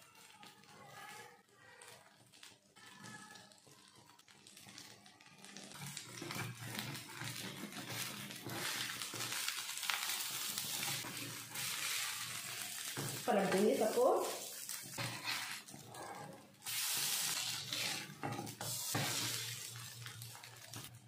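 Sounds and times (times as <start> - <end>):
oil sizzling on a hot griddle: 0.0 - 21.0
metal turner scraping a pan: 5.4 - 21.0.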